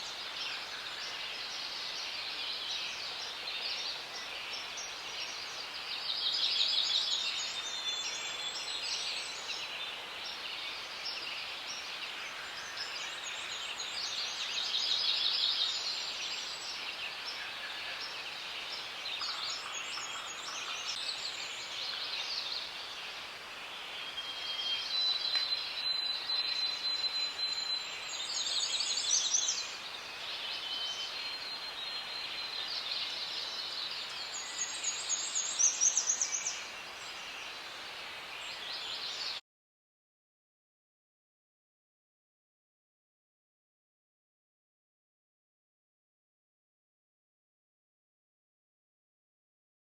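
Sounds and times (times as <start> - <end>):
birds singing: 0.0 - 23.2, 23.8 - 39.4.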